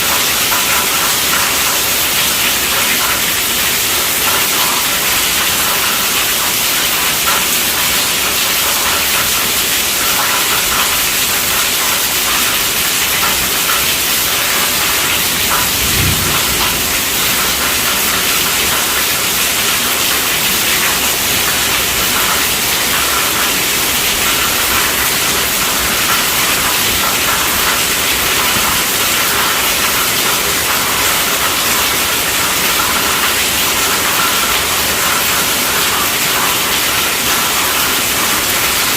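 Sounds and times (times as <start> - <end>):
heavy rain on a tent roof: 0.0 - 38.9
low bump: 15.5 - 17.6.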